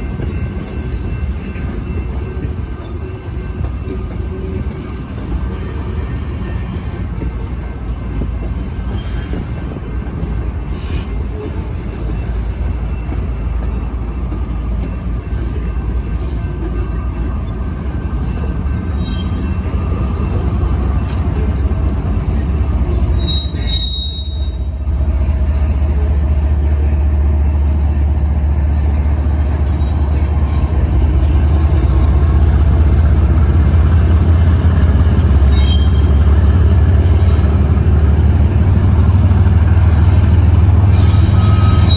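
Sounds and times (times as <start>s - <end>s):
train cars rumbling: 0.0s - 41.9s
high-pitched wheel squeals: 8.8s - 9.7s, 19.0s - 24.8s, 35.2s - 36.4s, 40.0s - 41.9s.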